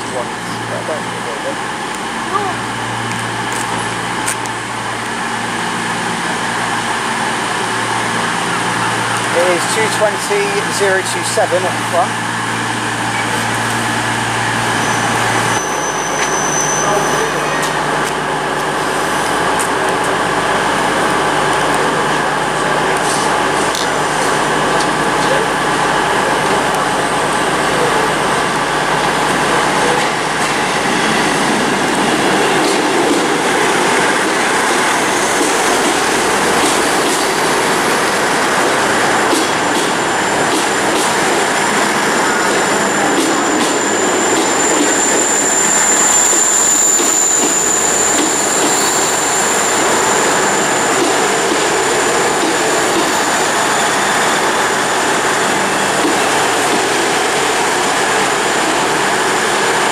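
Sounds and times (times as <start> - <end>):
diesel train engines and wheels: 0.0 - 59.9
high steady squeal: 14.4 - 17.8, 41.4 - 56.0.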